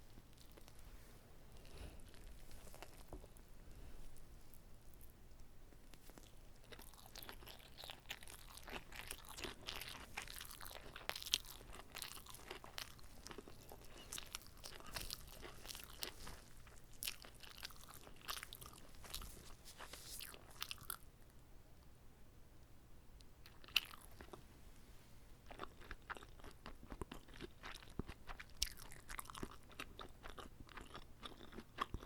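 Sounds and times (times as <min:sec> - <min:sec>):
wet crunchy chewing: 0:05.9 - 0:21.0, 0:23.4 - 0:24.4, 0:25.5 - 0:32.0.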